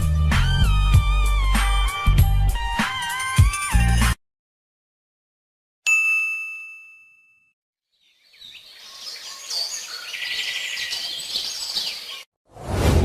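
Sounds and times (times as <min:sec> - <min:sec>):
ringing ding: 0:05.9 - 0:07.5
birds chirping: 0:07.9 - 0:12.3.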